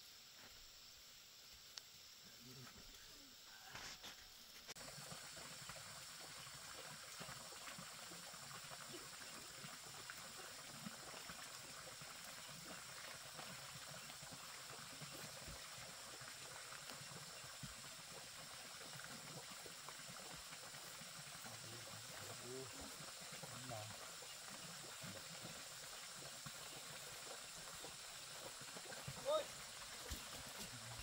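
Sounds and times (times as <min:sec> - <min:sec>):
light rain on vegetation: 0:00.0 - 0:31.0.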